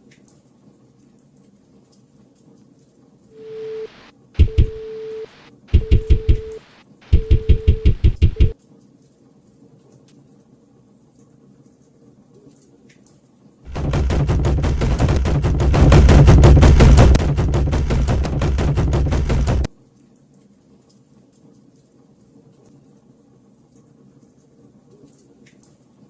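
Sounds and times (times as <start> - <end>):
rapid loud cracks: 4.4 - 4.8, 13.7 - 19.7
heavy low rumble: 13.7 - 19.7.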